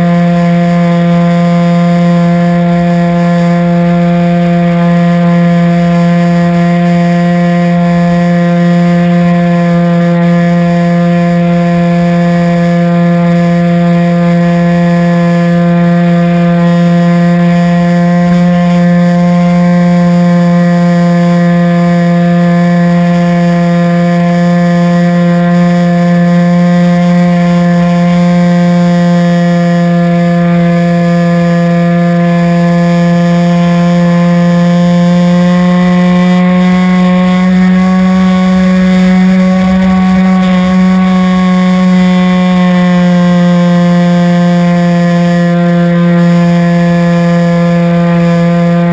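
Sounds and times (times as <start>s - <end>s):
model airplane motor droning: 0.0s - 48.9s.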